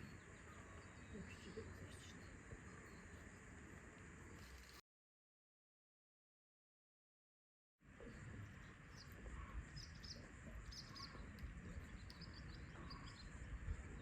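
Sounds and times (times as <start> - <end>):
small birds chirping: 0.0 - 4.8, 7.9 - 14.0
steady low rumble: 7.9 - 14.0.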